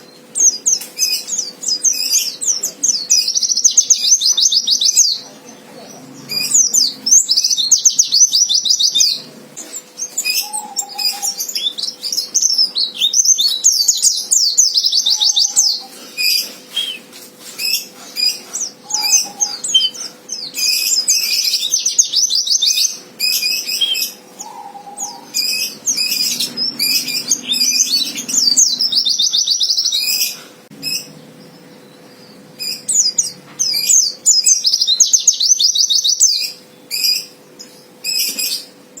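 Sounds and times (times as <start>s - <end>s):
bird singing high twittering trills: 0.0s - 39.0s.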